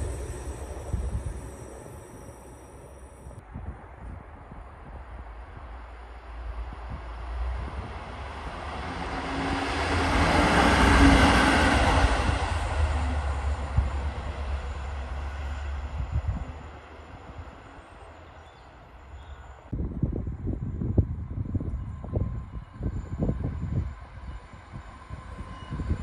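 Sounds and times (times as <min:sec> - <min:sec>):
train passing: 0:00.0 - 0:19.7.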